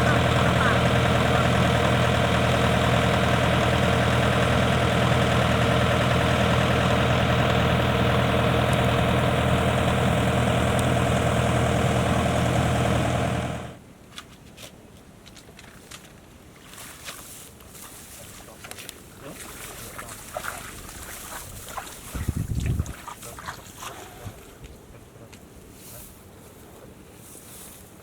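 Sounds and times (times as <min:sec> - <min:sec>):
diesel engine running: 0:00.0 - 0:13.8.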